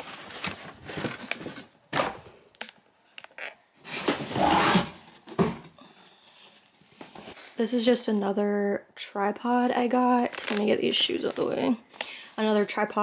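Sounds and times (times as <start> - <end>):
packaging rustling: 0.0 - 2.2.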